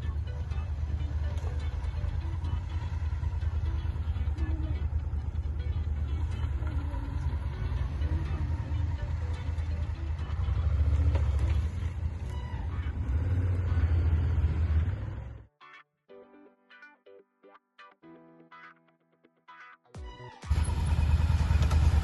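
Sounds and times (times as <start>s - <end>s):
motorcycle engine running: 0.0s - 15.4s, 20.4s - 22.0s.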